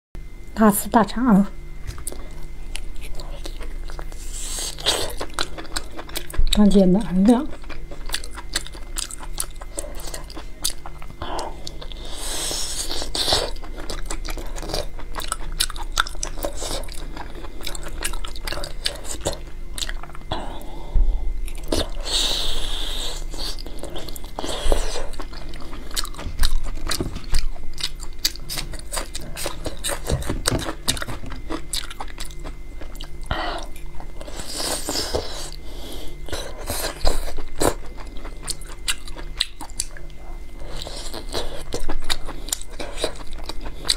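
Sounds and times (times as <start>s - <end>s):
close chewing with wet mouth clicks: 7.5s - 12.0s, 12.8s - 20.3s, 23.4s - 34.4s, 36.2s - 43.9s.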